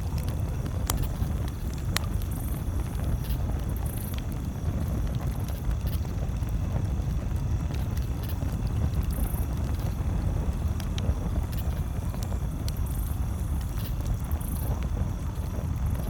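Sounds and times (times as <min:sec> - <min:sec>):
campfire crackling: 0:00.0 - 0:16.0
fire pops: 0:00.0 - 0:16.0.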